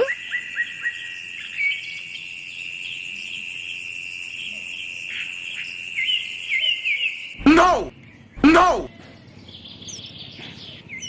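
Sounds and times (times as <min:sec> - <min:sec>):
bird chirps: 0:06.0 - 0:11.0.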